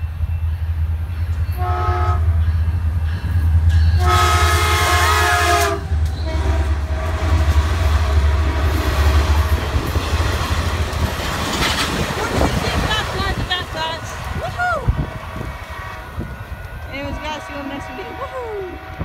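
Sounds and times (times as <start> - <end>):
train rumbling past: 0.0 - 19.0
train horn blasts: 1.5 - 2.6, 3.9 - 9.5, 15.4 - 19.0.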